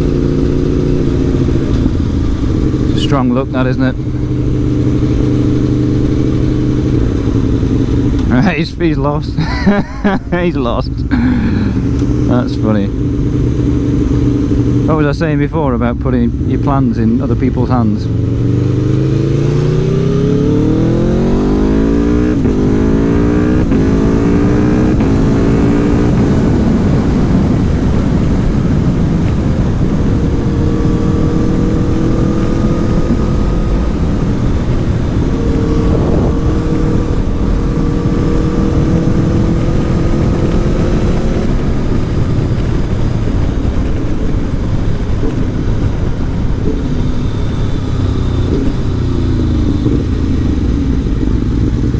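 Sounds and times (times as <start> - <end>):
motorcycle engine accelerating: 0.0 - 51.9
wind noise: 18.1 - 51.9.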